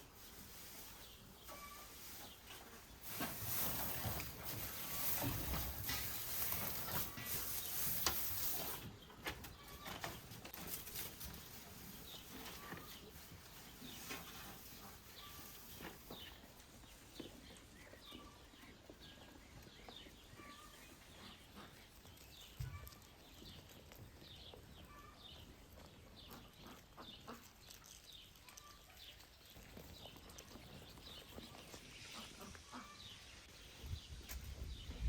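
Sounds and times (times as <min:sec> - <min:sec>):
small birds chirping: 0:00.1 - 0:35.0.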